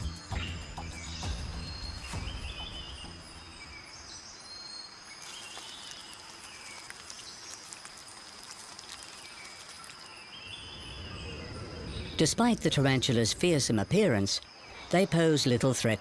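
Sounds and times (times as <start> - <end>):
birds chirping: 0.0 - 7.8, 9.0 - 16.0
insect drone: 1.6 - 16.0.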